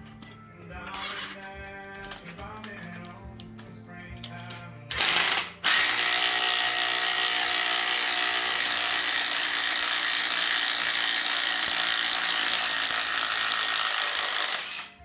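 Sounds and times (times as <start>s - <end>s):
power tool running: 4.9s - 15.0s.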